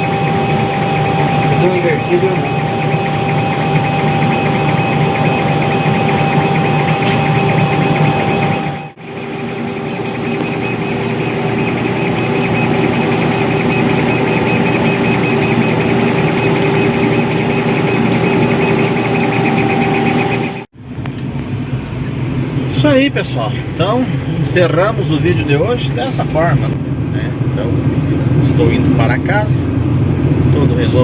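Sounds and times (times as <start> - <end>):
laser cutting machine humming: 0.0 - 20.7.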